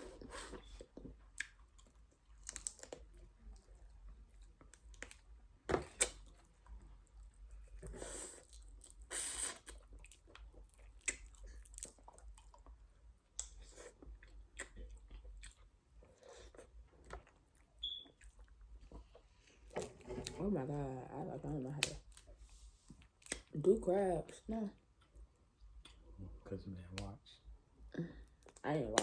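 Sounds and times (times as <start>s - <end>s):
chewing and crunching food: 0.0s - 20.4s, 21.6s - 23.6s.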